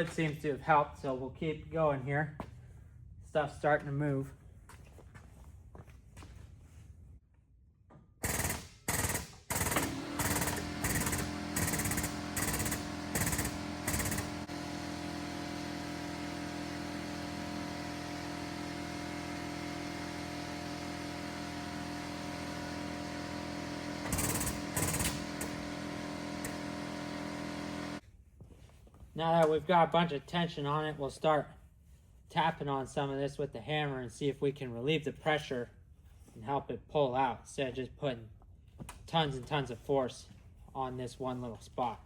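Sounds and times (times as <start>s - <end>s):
steady motor hum: 9.7s - 28.0s.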